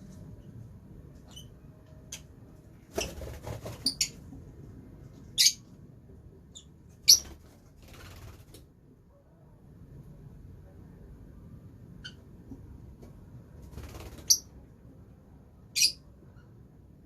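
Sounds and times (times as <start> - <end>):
birds chirping: 5.2 - 5.7.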